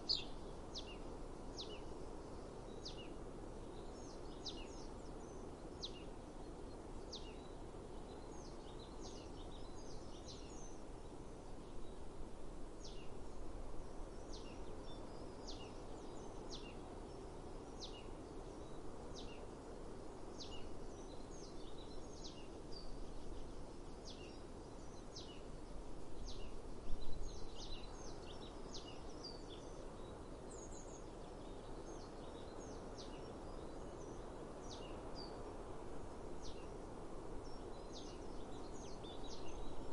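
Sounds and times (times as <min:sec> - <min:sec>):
songbird calling: 0:00.0 - 0:02.0
outdoor background hiss: 0:00.0 - 0:39.9.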